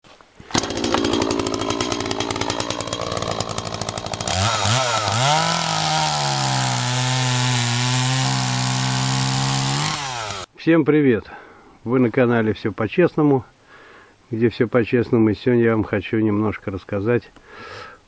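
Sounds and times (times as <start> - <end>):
chainsaw running at high revs: 0.5 - 10.5.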